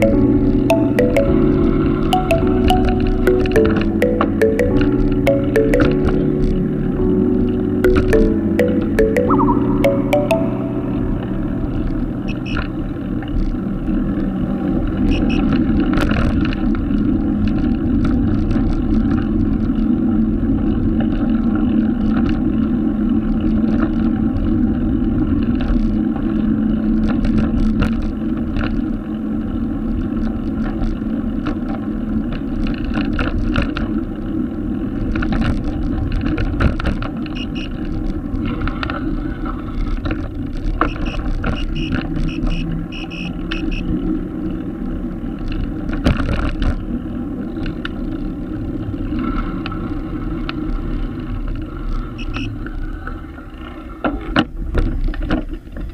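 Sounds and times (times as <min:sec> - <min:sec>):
bicycle road and wind noise: 0:11.6 - 0:55.9.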